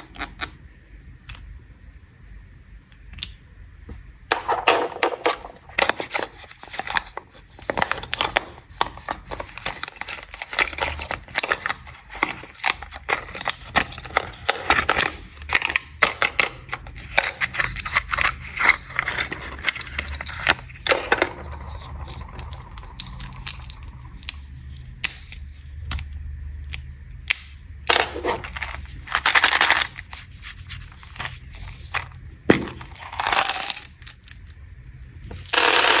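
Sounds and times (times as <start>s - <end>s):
plastic wrappers crinkling: 4.3s - 24.4s, 27.9s - 34.4s.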